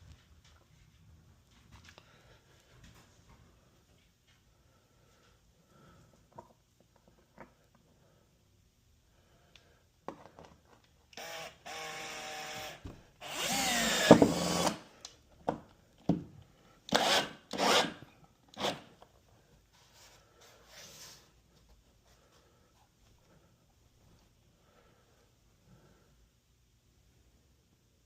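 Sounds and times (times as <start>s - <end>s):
small power tool running: 11.2s - 14.8s.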